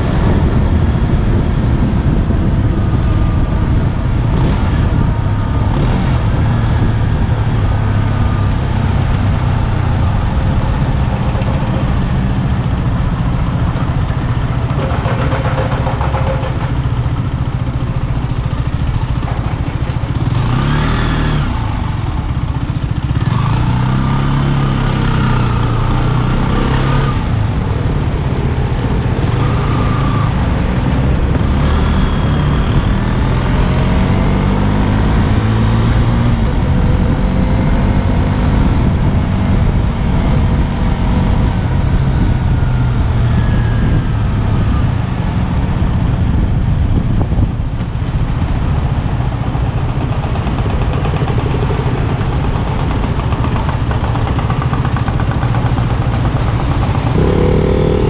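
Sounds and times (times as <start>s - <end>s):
heavy wind noise on microphone: 0.0s - 58.0s
motorcycle engine running: 0.0s - 58.0s.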